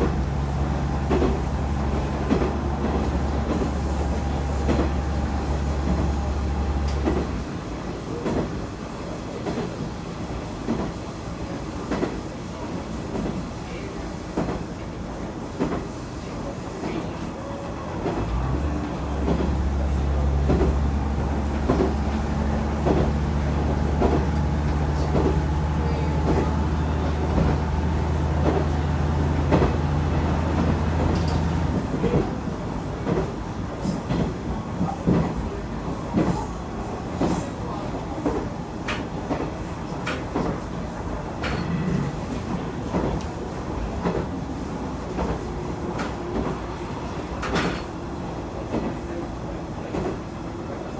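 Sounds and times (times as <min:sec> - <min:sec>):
train wheels clicking over rail joints: 0:00.0 - 0:07.4, 0:18.0 - 0:32.4, 0:47.3 - 0:48.0.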